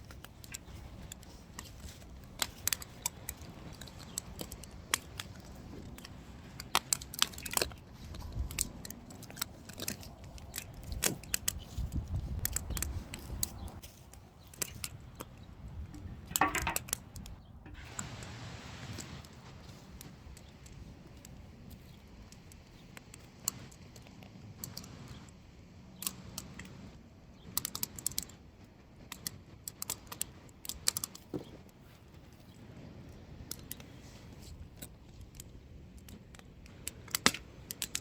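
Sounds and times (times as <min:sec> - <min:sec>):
wood fire crackling and popping: 0:00.0 - 0:18.3, 0:35.2 - 0:38.0.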